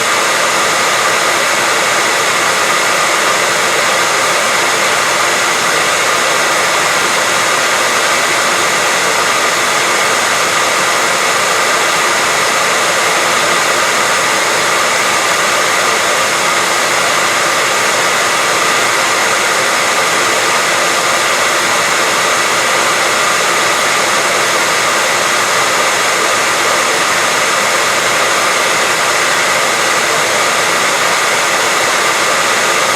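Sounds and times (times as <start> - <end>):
hair dryer running: 0.0 - 32.9.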